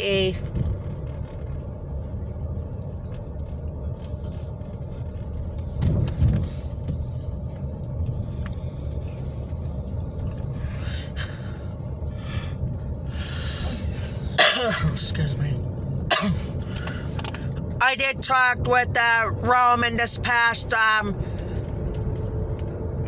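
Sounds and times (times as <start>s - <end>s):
car cabin rumble: 0.0s - 23.0s
car bump: 5.7s - 7.0s.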